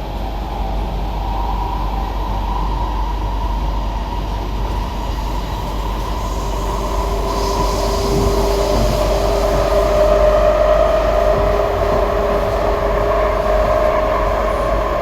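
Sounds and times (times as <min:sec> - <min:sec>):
train rolling rumble: 0:00.0 - 0:15.0
train motor tones: 0:04.7 - 0:15.0.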